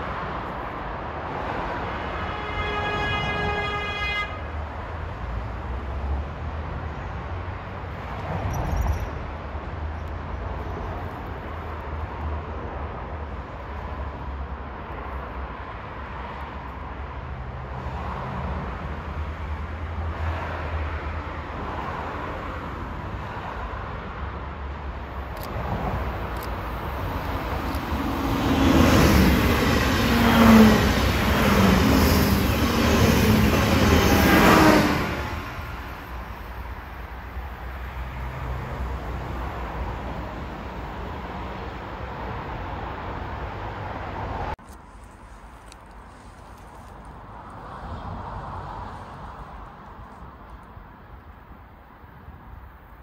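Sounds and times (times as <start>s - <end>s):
low railway rumble: 0.0s - 53.0s
train approaching: 25.1s - 43.6s.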